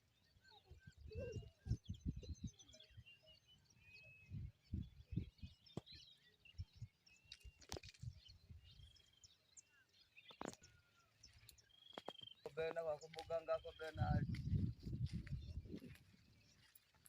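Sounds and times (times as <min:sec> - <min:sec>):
birds chirping and whistling: 0:00.0 - 0:17.0
soft low thumps: 0:14.0 - 0:16.2.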